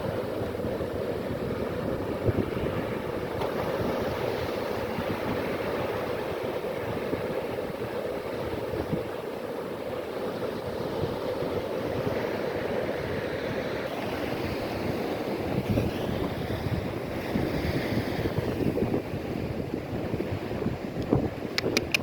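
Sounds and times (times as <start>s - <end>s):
sea waves washing: 0.0s - 22.0s
wind buffeting microphone: 0.0s - 22.0s
sharp clicks: 21.6s - 22.0s.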